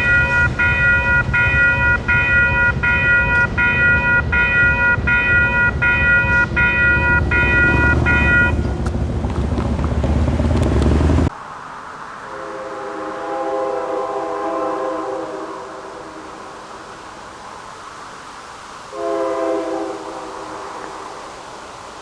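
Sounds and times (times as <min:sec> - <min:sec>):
railroad crossing bell ringing: 0:00.0 - 0:10.4
heavy low rumble: 0:00.0 - 0:11.3.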